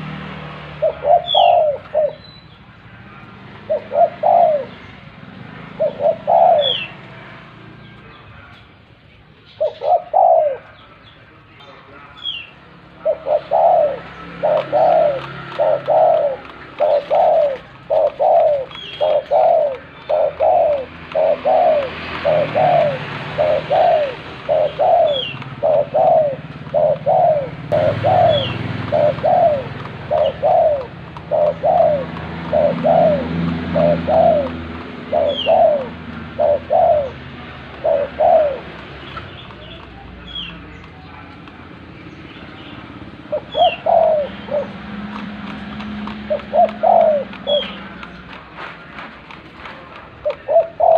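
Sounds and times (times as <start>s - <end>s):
dove cooing: 0.0s - 2.4s, 3.2s - 7.1s, 9.5s - 10.9s, 12.8s - 49.0s, 49.7s - 50.9s
high bird chirp: 0.8s - 2.8s, 5.7s - 7.0s, 9.4s - 41.2s, 41.9s - 44.8s, 46.2s - 48.3s.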